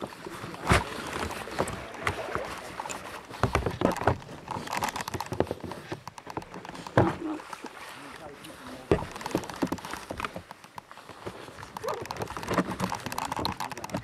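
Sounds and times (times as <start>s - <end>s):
kayaks and paddles knocking: 0.0s - 14.0s.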